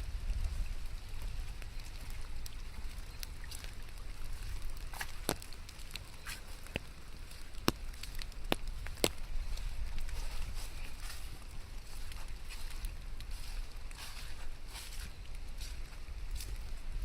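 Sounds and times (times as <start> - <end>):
steady low rumble: 0.0 - 6.1
raindrops tapping and dripping: 0.0 - 17.0.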